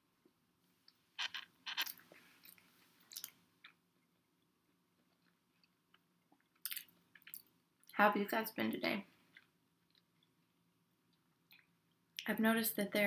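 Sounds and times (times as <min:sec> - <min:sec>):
chewing with crisp crunches: 0:05.0 - 0:07.9.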